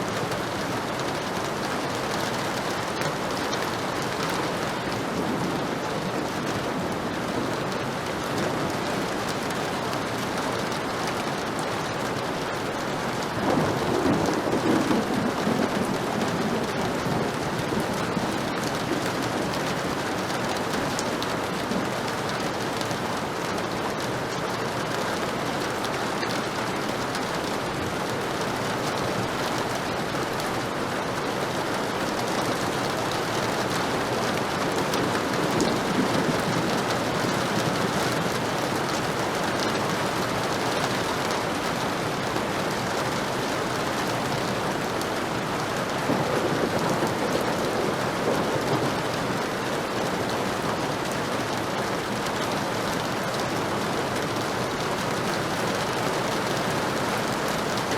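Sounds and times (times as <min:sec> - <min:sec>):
heavy rain falling: 0:00.0 - 0:57.9
thunder rumbling: 0:13.2 - 0:20.7, 0:32.5 - 0:40.4, 0:45.8 - 0:49.5.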